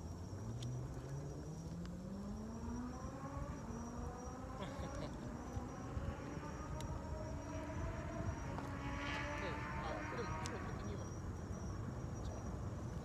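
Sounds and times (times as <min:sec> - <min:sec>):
distant machine whine: 0:00.0 - 0:13.0
faint ticks: 0:00.1 - 0:02.0.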